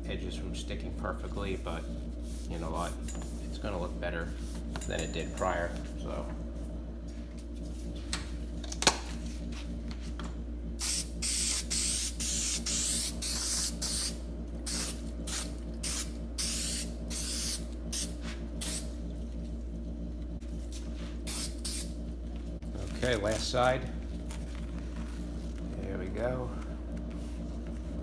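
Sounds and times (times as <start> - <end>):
low steady hum: 0.0 - 28.0
aerosol can spraying: 10.8 - 18.9, 21.3 - 21.9.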